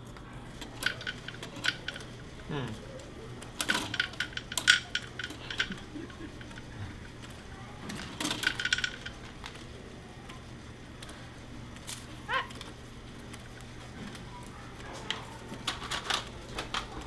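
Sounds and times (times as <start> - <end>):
plastic pieces clattering: 15.5 - 17.0.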